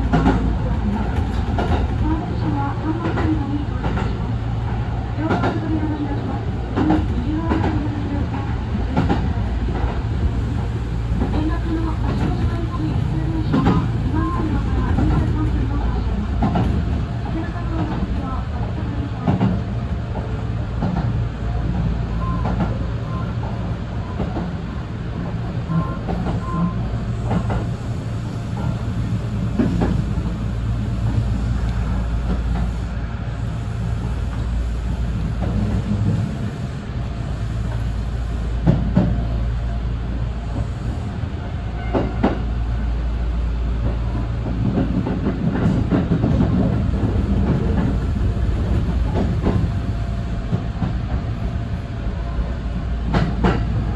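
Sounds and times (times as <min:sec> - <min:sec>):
train wheels rumbling: 0:00.0 - 0:53.9.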